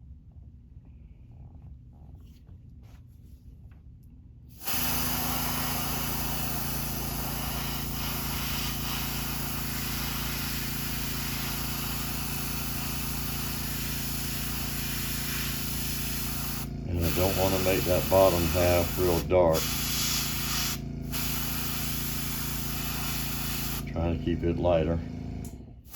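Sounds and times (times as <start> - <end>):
airbrush spraying hiss: 4.6 - 23.9
low hum: 4.8 - 25.9.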